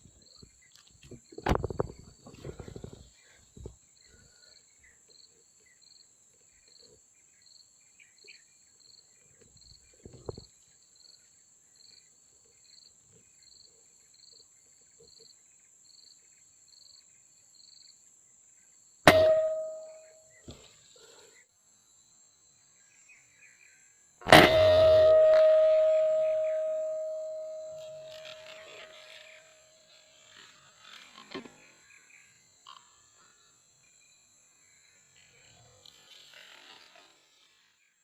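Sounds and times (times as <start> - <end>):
insects chirping: 0.0 - 37.1
air rifle shot: 19.1 - 20.0, 24.3 - 28.2.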